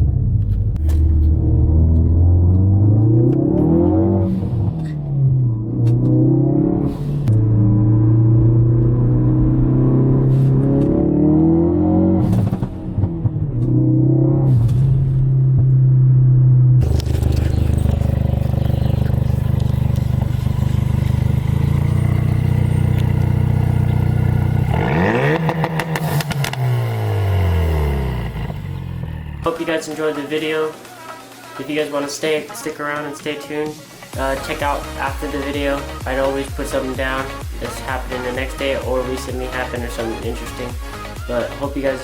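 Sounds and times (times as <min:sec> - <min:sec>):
loud car engine revving: 0:00.0 - 0:29.6.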